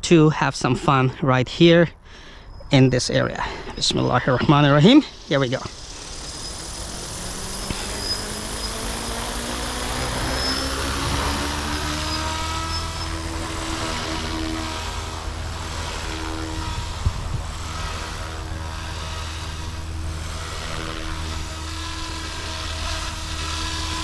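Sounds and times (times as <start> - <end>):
rc helicopter motor and rotor whine: 2.4 - 24.0.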